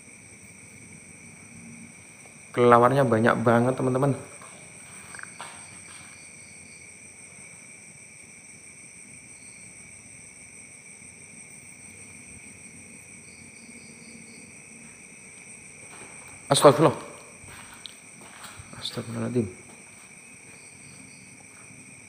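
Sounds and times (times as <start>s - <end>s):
night insects trilling: 0.0s - 22.0s
faint chirps: 5.0s - 6.7s.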